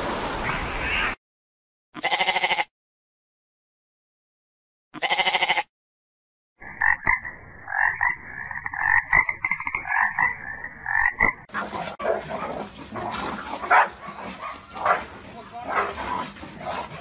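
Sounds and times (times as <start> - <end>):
goat bleating: 2.0 - 2.7, 5.0 - 5.7
frog rattling croaks: 6.6 - 11.5.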